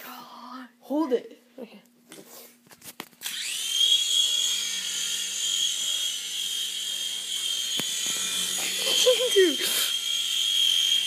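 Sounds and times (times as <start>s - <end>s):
toy airplane motor whine: 3.2s - 11.0s.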